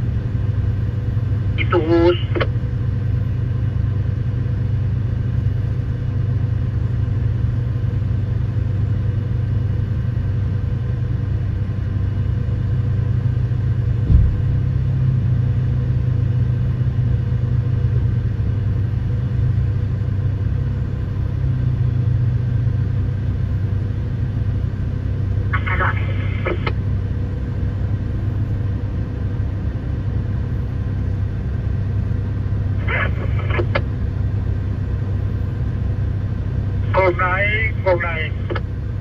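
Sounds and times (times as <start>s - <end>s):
excavator diesel engine rumbling: 0.0s - 39.0s
short knock: 14.1s - 14.5s.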